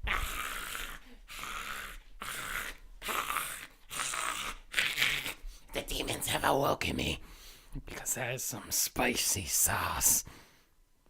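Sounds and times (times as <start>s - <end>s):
person breathing hard: 7.2s - 7.8s, 10.2s - 10.8s.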